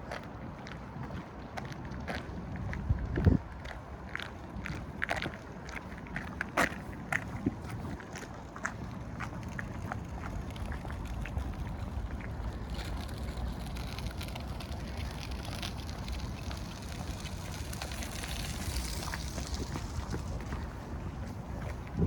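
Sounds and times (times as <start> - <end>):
steady low rumble: 7.0 - 22.0.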